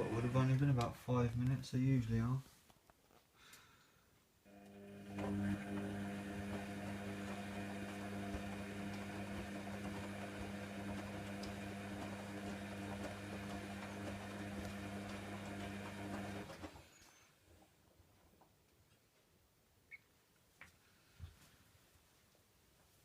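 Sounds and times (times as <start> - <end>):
washer pump humming: 0.0 - 0.8, 4.5 - 16.9.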